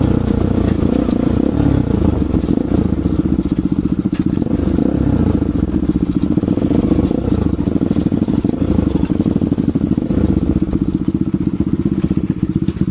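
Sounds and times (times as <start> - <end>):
motorcycle engine exhaust pulses: 0.0 - 12.9.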